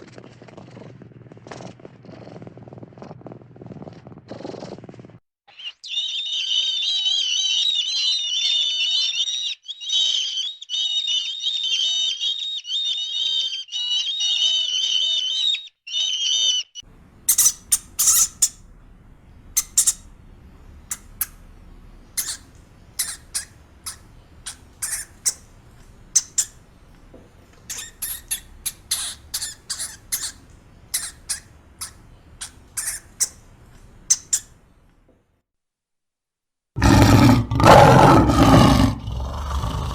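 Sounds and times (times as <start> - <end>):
birds chattering: 5.5 - 35.0
short sharp bird chirps: 13.7 - 34.6.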